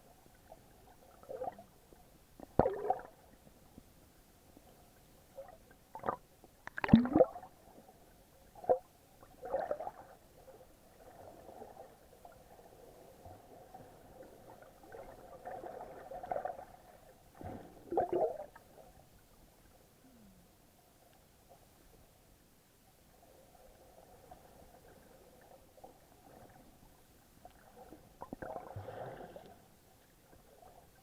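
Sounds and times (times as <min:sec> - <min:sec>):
muffled water sloshing and gurgling: 0:04.6 - 0:20.2, 0:23.2 - 0:31.0.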